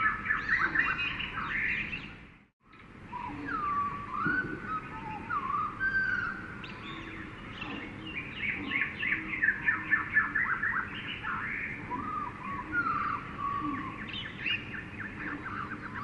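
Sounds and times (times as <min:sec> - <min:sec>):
birds whistling gliding notes: 0:00.0 - 0:16.0.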